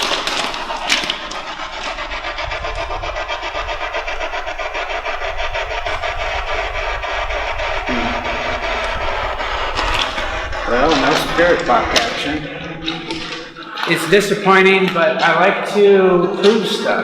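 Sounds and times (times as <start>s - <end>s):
radio static sweeping: 2.6s - 14.8s.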